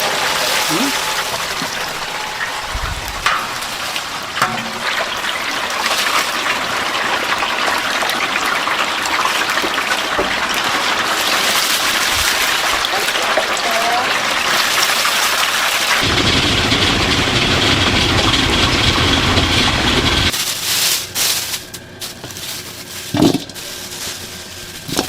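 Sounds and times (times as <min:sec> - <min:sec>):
chicken sizzling in hot oil: 0:03.6 - 0:17.9.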